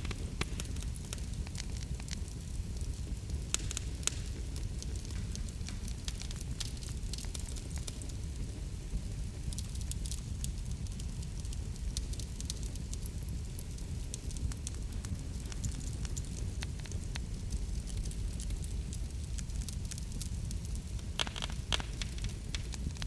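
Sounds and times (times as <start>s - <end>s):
fire pops and crackles: 0.0s - 23.0s
wood fire burning rumble: 0.0s - 23.0s.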